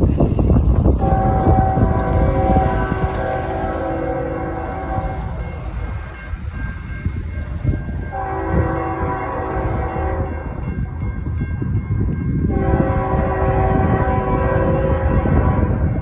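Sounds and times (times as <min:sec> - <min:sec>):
train rumbling: 0:00.0 - 0:16.0
locomotive air horn: 0:01.0 - 0:05.4, 0:08.1 - 0:10.4, 0:12.5 - 0:16.0.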